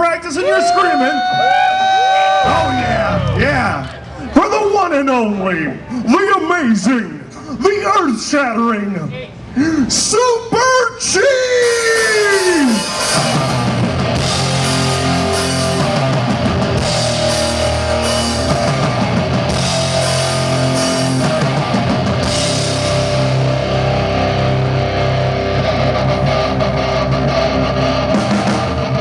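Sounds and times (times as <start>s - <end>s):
drum kit: 2.4s - 3.8s, 11.6s - 29.0s
live rock band playing: 2.4s - 3.8s, 11.6s - 29.0s
heavy electric guitar: 2.4s - 4.3s, 11.3s - 29.0s.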